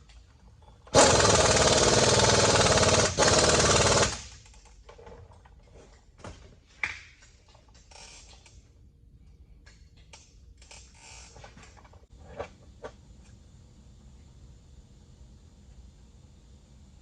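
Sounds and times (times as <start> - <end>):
pneumatic air tool hammering: 0.9 - 4.4.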